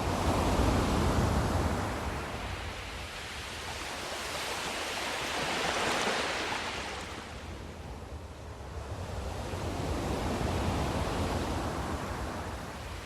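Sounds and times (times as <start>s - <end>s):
ocean waves breaking: 3.6s - 7.3s.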